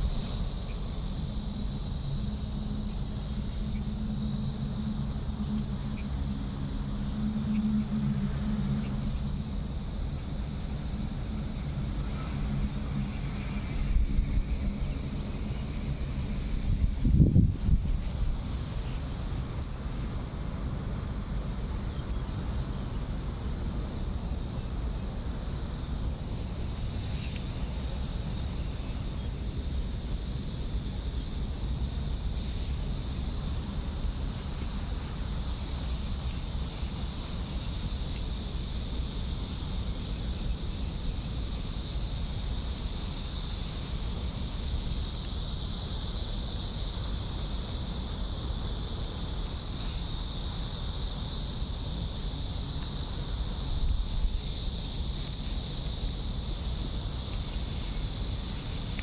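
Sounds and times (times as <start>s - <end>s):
high-pitched insect drone: 0.0s - 59.0s
steady low rumble: 0.0s - 59.0s.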